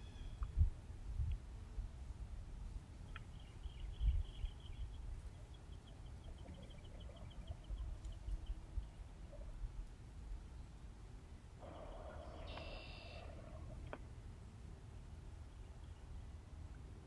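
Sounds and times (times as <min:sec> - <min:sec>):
songbird trilling: 0:00.0 - 0:00.6, 0:11.6 - 0:13.5.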